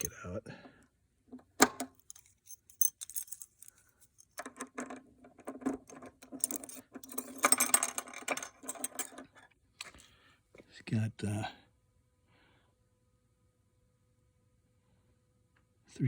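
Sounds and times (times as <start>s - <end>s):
keys jangling: 1.8s - 9.3s.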